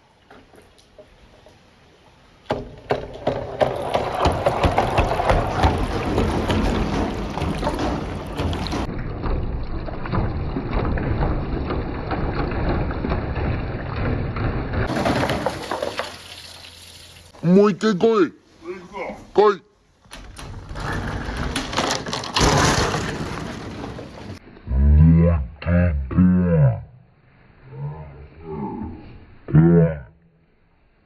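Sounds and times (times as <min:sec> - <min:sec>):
water rushing: 0:03.5 - 0:17.4
glass marbles rolling and clattering: 0:14.8 - 0:17.0, 0:20.8 - 0:24.4.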